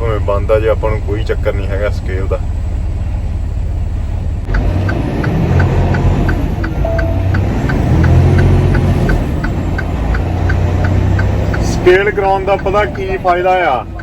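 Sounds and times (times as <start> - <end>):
steady ticking: 0.0 - 14.0
truck diesel engine: 0.0 - 14.0.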